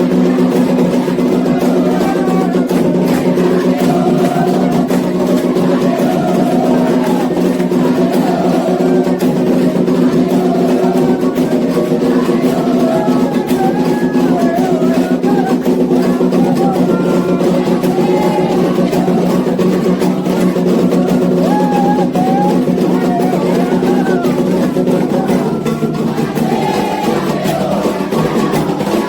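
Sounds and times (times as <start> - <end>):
chanted singing: 0.0 - 29.0
hand drums beating: 0.0 - 29.0.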